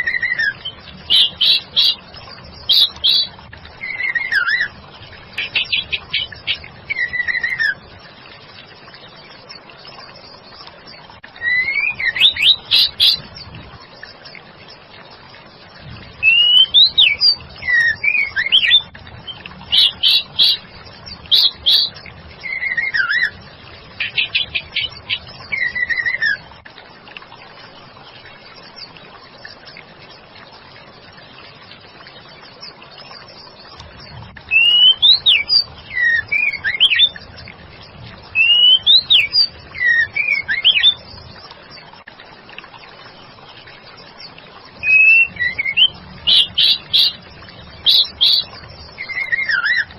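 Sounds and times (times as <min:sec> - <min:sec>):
bird singing whistled notes: 0:00.0 - 0:02.0, 0:02.6 - 0:04.7, 0:05.4 - 0:07.8, 0:11.4 - 0:13.4, 0:16.2 - 0:23.4, 0:24.0 - 0:26.4, 0:34.5 - 0:37.2, 0:38.3 - 0:41.2, 0:44.8 - 0:49.9.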